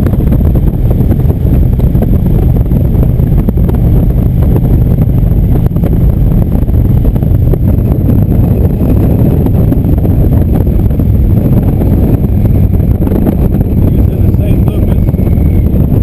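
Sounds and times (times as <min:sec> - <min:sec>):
motorcycle engine running: 0:00.0 - 0:16.0
wind buffeting microphone: 0:00.0 - 0:16.0.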